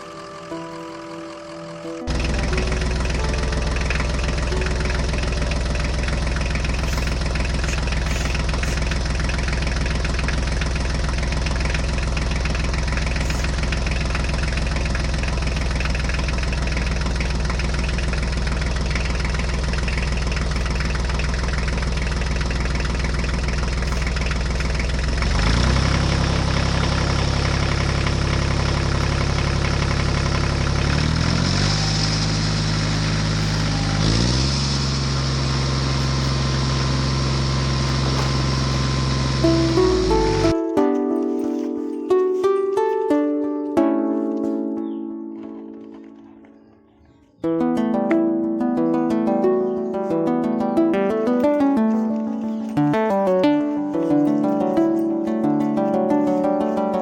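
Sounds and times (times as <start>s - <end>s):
vehicle engine idling: 0.0s - 47.4s, 48.2s - 57.0s.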